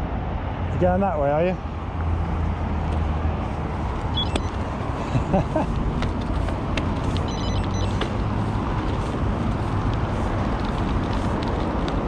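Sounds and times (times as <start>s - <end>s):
road traffic: 0.0s - 12.0s
wind rumble on microphone: 1.7s - 12.0s.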